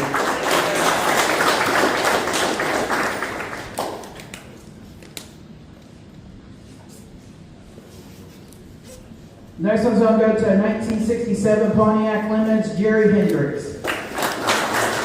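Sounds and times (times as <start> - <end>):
crowd applauding: 0.0 - 4.4, 13.8 - 15.0.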